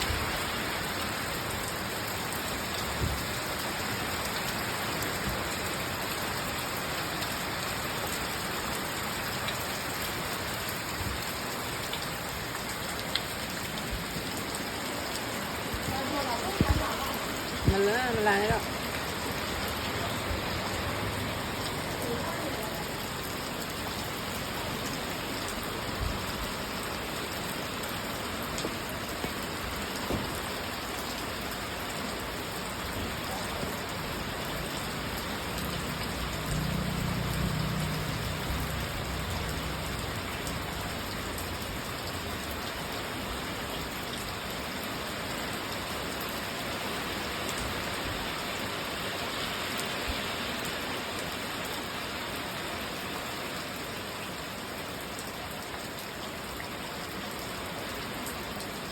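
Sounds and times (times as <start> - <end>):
steady rain hiss: 0.0 - 58.9
sharp drip-like taps: 28.5 - 29.4, 30.0 - 30.4.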